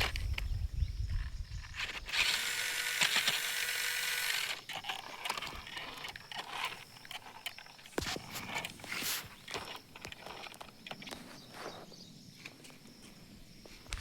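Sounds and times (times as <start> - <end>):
toy motor whirring: 1.8 - 7.8.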